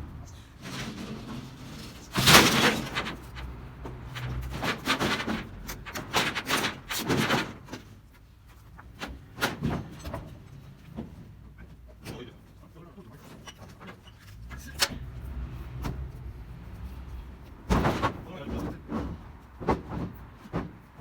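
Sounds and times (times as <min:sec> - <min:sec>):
tin roofing sheets banging: 0:00.6 - 0:08.0, 0:17.6 - 0:21.0.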